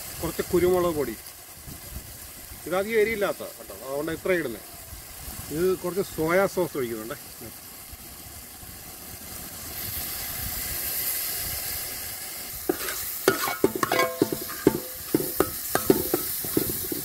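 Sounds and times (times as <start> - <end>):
onion and spices sizzling in oil: 0.0 - 17.0
sauce pouring: 9.7 - 17.0
metal spoon scraping pot: 12.7 - 17.0.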